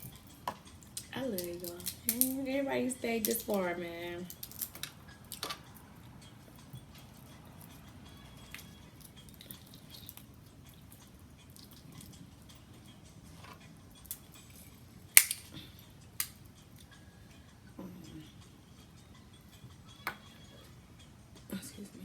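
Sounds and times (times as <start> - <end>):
crab shells cracking by hand: 0.0 - 2.4, 4.2 - 5.8, 8.5 - 10.3, 14.0 - 16.4.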